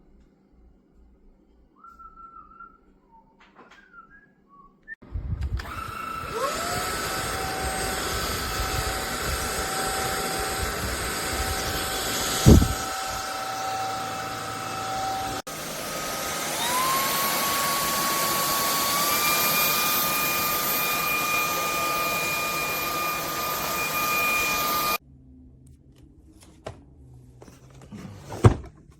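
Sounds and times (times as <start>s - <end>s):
stick vacuum motor whine: 5.4s - 25.0s.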